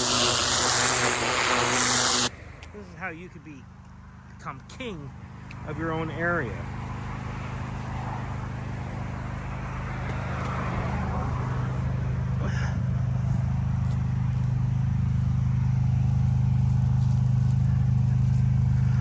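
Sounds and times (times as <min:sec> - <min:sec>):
pressure washer running: 0:00.0 - 0:02.4, 0:11.7 - 0:19.0.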